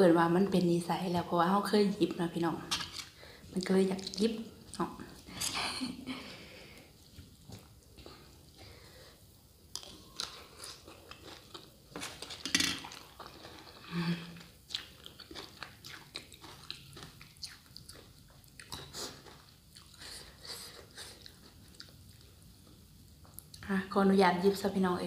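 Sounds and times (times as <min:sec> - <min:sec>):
crunchy chewing: 0:09.7 - 0:22.4.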